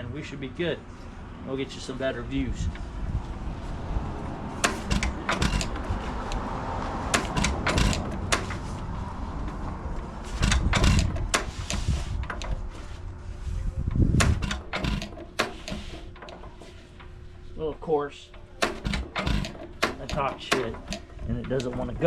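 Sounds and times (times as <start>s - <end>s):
stationary engine turned over by hand: 4.4s - 12.9s, 13.9s - 22.0s
metallic clicks and clanks: 4.6s - 12.7s, 13.9s - 22.0s.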